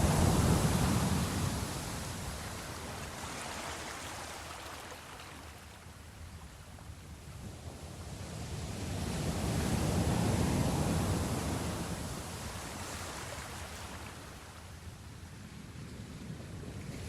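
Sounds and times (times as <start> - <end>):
sea waves washing: 0.0 - 6.0.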